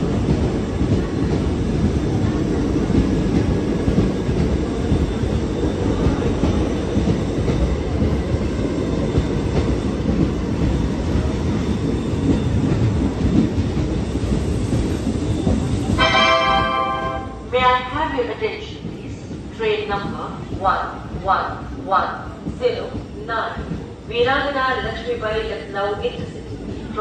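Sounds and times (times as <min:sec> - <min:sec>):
train rumbling along platform: 0:00.0 - 0:27.0
public address chime: 0:16.0 - 0:17.9.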